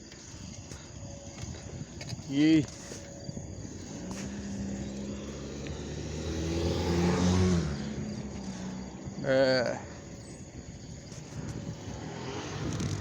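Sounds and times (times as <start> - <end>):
car driving past: 3.8 - 10.0, 11.3 - 13.0.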